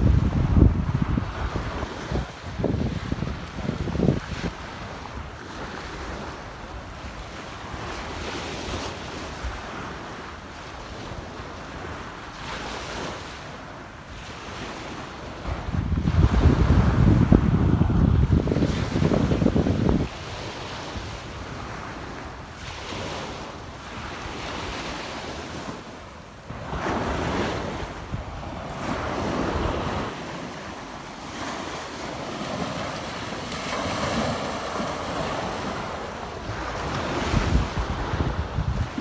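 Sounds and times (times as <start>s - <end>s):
small waves breaking on beach: 0.0s - 39.0s
wind on microphone: 0.0s - 39.0s.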